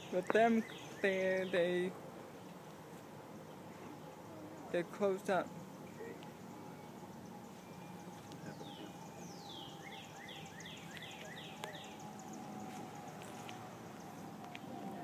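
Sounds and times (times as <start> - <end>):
honeybees humming: 0.0 - 15.0
bird singing falling whistles: 7.7 - 13.0.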